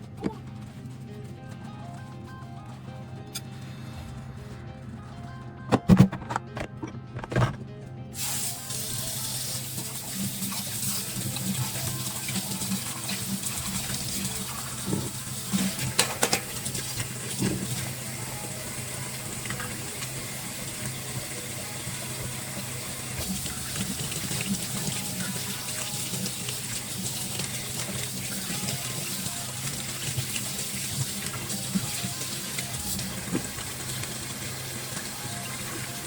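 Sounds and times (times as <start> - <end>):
tap water running into sink: 8.2 - 36.0
dishes clinking: 15.6 - 16.8.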